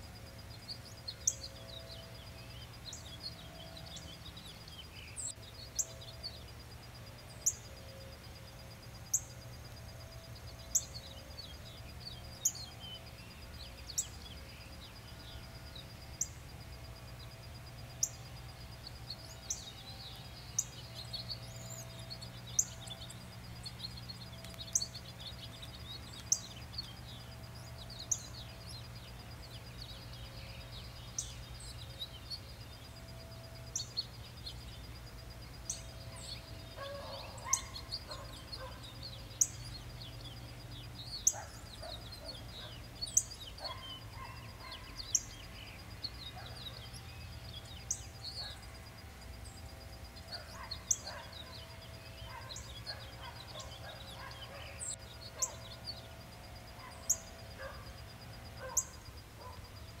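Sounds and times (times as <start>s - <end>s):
faint hum: 0.0s - 60.0s
soft bird chirps: 10.3s - 60.0s.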